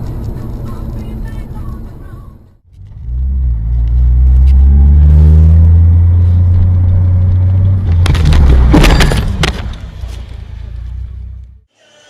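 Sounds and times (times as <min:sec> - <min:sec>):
low drone of car on road: 0:00.0 - 0:11.7.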